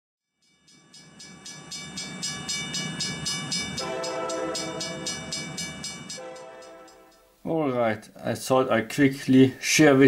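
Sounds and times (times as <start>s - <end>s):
train rhythmic beat: 0.5s - 7.4s
train horn: 3.8s - 5.5s, 6.1s - 7.2s.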